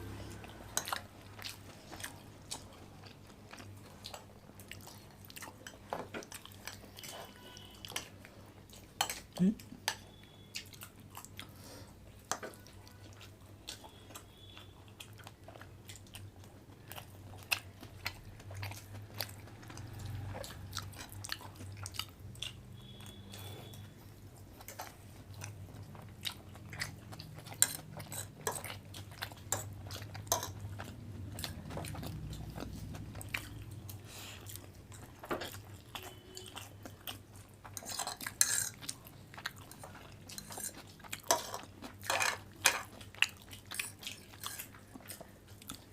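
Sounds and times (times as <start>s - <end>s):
people chewing and eating: 0.0s - 45.9s
cutlery clinking on dishes: 30.3s - 30.6s, 37.8s - 38.8s, 40.4s - 42.9s.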